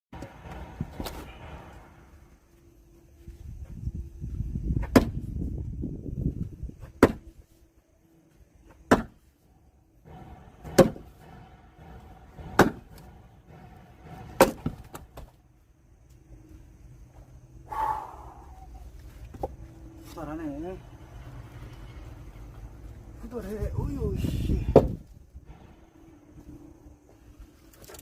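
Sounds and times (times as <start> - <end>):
axe strikes splitting log: 4.8 - 5.2, 7.0 - 7.2, 8.9 - 9.2, 12.6 - 12.8.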